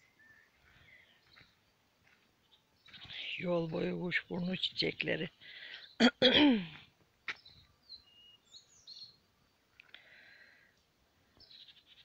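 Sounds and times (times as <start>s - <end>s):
faint songbird chirps: 0.0s - 6.1s, 7.2s - 12.0s.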